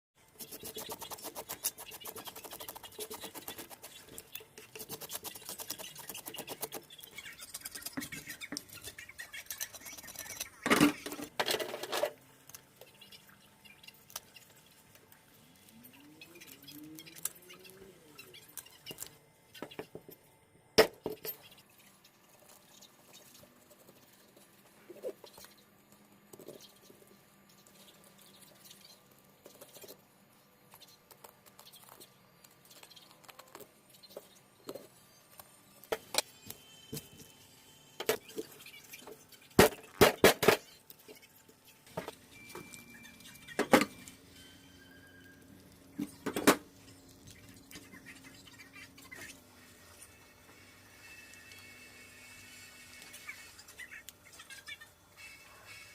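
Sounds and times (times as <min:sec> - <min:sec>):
knife scaling and cutting fish: 0:00.3 - 0:11.3.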